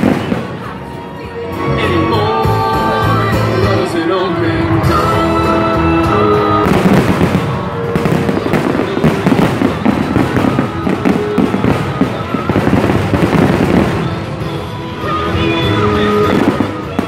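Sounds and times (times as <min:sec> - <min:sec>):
fireworks bangs and crackling: 0:00.0 - 0:01.2, 0:04.7 - 0:17.0
music playing: 0:00.0 - 0:17.0.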